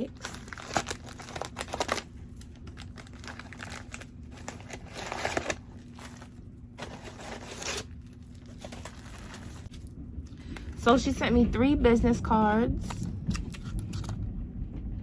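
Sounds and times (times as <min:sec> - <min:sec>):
packaging crinkling and rustling: 0:00.0 - 0:10.7.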